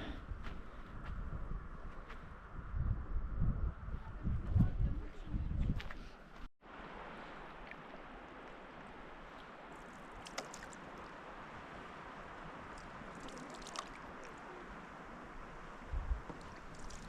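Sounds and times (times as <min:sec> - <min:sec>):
river water washing: 0:06.6 - 0:17.0
small water splashes: 0:07.0 - 0:15.1, 0:16.2 - 0:17.0.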